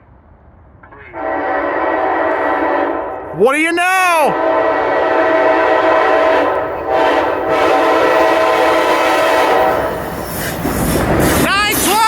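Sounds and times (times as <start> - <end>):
train rushing past: 0.0 - 12.0
train horn chord: 1.1 - 3.3, 4.3 - 9.9.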